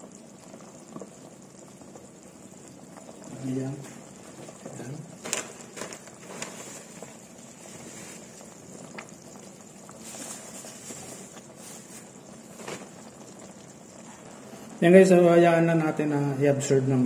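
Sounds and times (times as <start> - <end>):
pot simmering with soft bubbling: 0.0 - 17.0.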